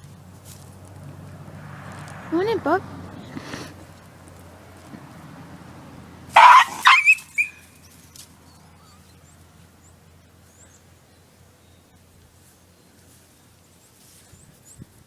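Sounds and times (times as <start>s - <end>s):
dog yelping: 6.3s - 7.7s.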